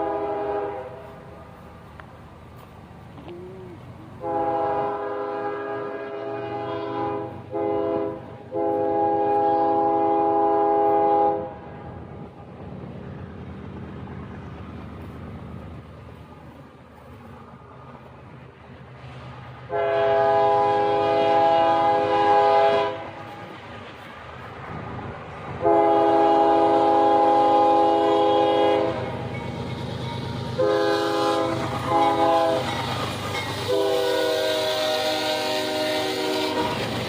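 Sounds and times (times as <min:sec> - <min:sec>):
locomotive air horn blasts: 0:00.0 - 0:01.2, 0:04.2 - 0:11.6, 0:19.7 - 0:23.2, 0:25.6 - 0:29.2, 0:30.2 - 0:32.8, 0:33.6 - 0:36.8
train rumble: 0:00.0 - 0:37.0.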